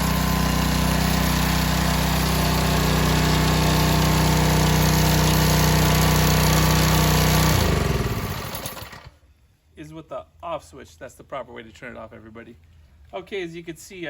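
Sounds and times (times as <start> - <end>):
engine winding down: 0.0 - 9.2
small engine running: 0.0 - 9.2.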